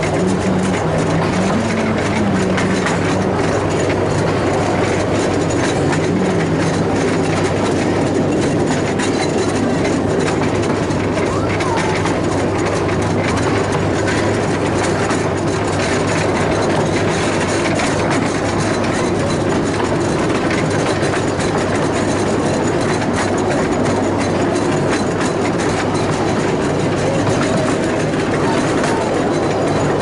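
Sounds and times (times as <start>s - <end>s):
miniature train running: 0.0s - 30.0s
wheels clacking on rails: 0.0s - 30.0s.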